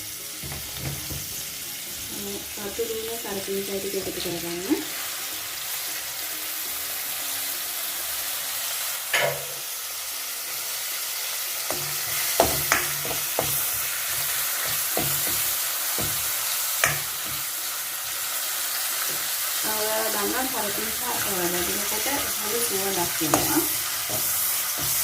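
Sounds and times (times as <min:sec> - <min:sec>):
onions sizzling in hot oil: 0:00.0 - 0:25.0
spoon knocking and scraping wok: 0:09.1 - 0:09.6, 0:11.7 - 0:17.6, 0:20.9 - 0:25.0.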